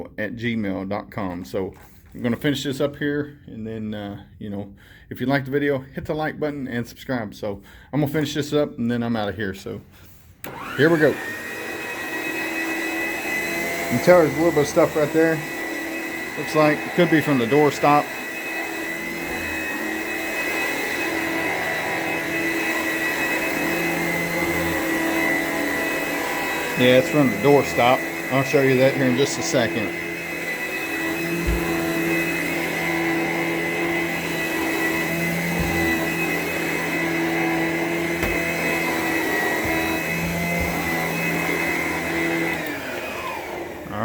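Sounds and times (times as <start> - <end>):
vacuum cleaner running: 10.4 - 44.0.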